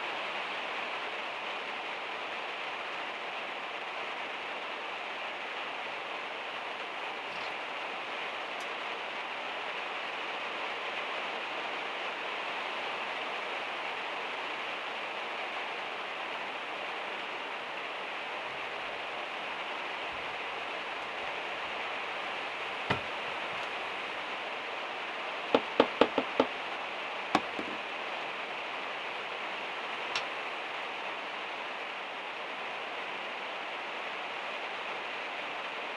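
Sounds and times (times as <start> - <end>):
rain on a metal roof: 0.0 - 35.9
sharp knocks: 25.6 - 26.5.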